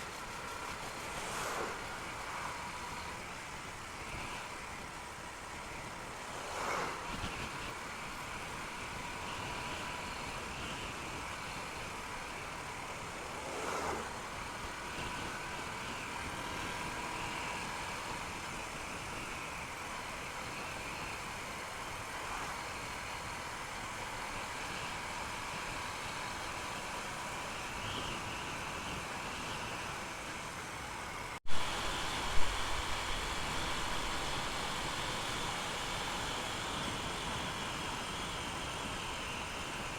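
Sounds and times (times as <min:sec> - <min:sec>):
wind and road noise: 0:00.0 - 0:39.9
motorcycle engine hum: 0:31.4 - 0:39.8.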